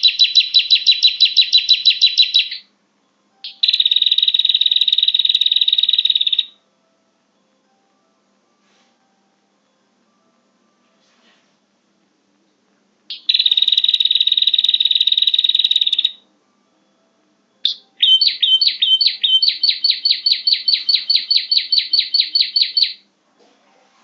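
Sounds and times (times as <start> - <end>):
bird quick repeated chirps: 0.0 - 2.6, 17.7 - 23.0.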